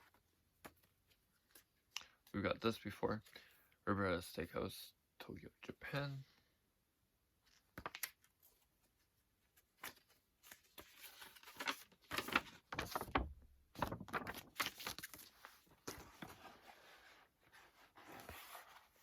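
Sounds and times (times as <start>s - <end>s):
packaging rustling and crinkling: 9.9s - 16.6s.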